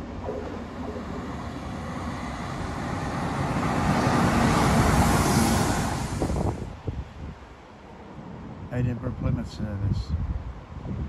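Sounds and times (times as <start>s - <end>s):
train passing on rails: 0.0s - 8.6s.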